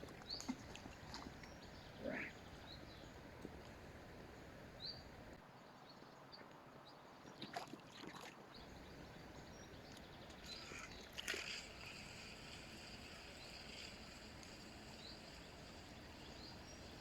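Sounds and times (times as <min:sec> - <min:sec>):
faint bird chirps: 0:00.2 - 0:03.2, 0:08.6 - 0:17.0.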